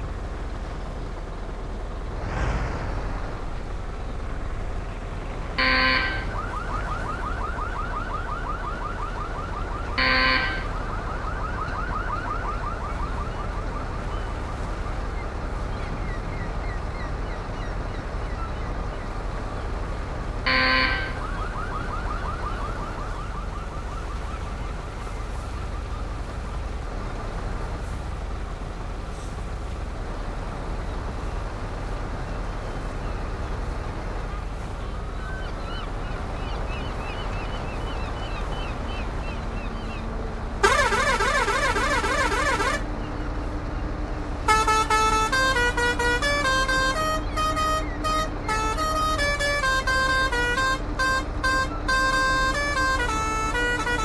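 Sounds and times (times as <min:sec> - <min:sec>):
engine and road noise: 0:00.0 - 0:54.0
truck horn blasts: 0:05.5 - 0:07.1, 0:09.8 - 0:11.0, 0:20.3 - 0:22.0, 0:40.5 - 0:43.0, 0:44.3 - 0:54.0.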